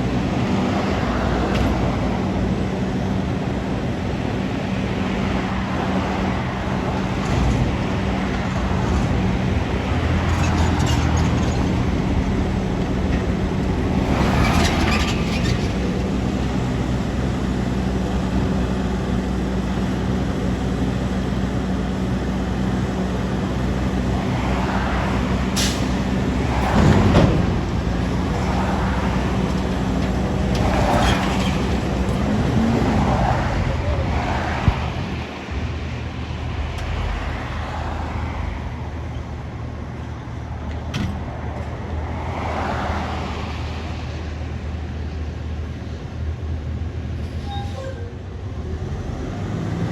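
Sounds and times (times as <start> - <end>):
garbage truck engine running: 0.0 - 34.1.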